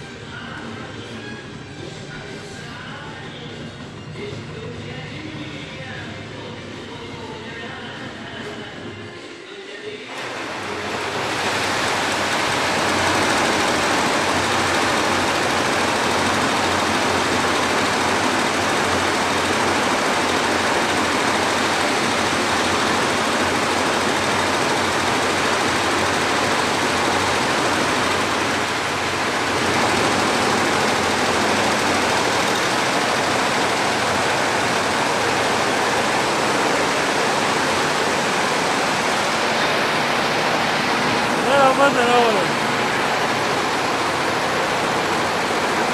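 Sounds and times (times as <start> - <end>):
embroidery machine running: 10.1 - 45.9.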